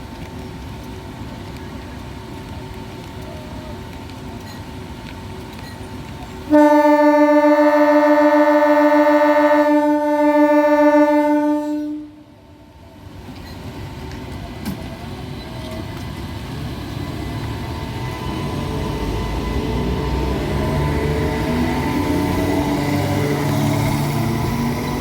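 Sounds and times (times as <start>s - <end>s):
train running rumble: 0.0s - 25.0s
train horn long blast: 6.5s - 12.6s.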